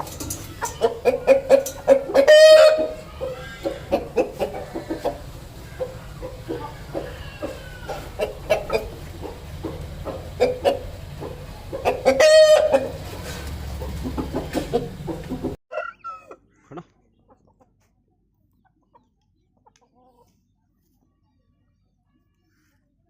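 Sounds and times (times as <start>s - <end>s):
chickens clucking: 0.0s - 21.0s
rooster crowing: 0.4s - 8.7s, 12.1s - 12.9s.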